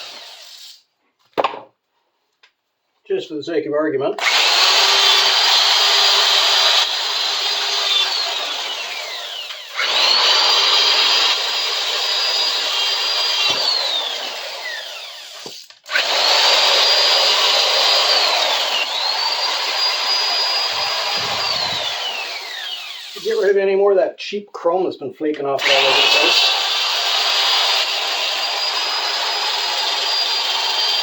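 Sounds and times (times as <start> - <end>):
power tool winding down: 0.0 - 0.8, 4.2 - 23.5, 25.6 - 31.0
power tool grinding metal: 4.2 - 23.5, 25.6 - 31.0.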